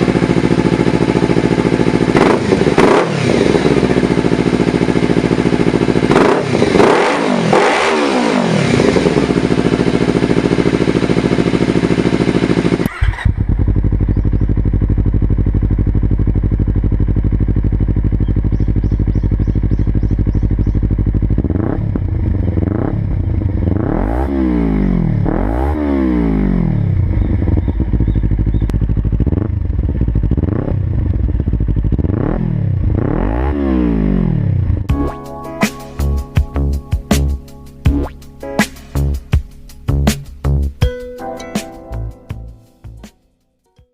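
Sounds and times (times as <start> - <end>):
motorcycle engine idling: 0.0 - 7.1, 8.4 - 24.0, 26.5 - 33.0
motorcycle engine revving: 0.0 - 40.8.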